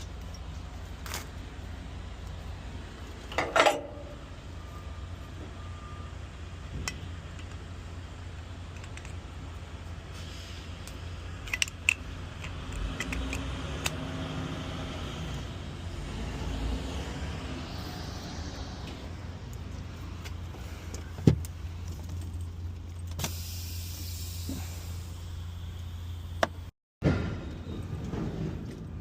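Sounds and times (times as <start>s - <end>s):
sharp metallic clicks and rattles: 10.8s - 14.0s.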